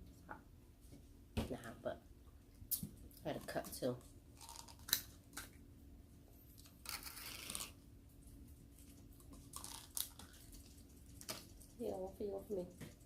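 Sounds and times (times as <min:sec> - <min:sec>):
crab shells crackling and crunching: 0:02.7 - 0:05.6, 0:06.6 - 0:07.8, 0:08.8 - 0:13.0.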